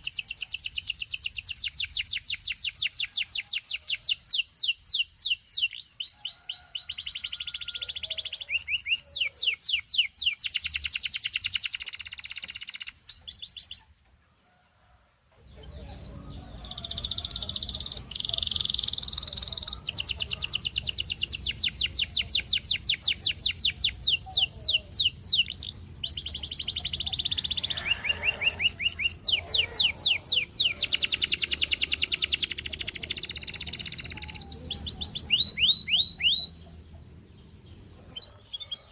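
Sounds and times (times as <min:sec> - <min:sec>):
canary singing trills: 0:00.0 - 0:14.0, 0:15.4 - 0:38.9.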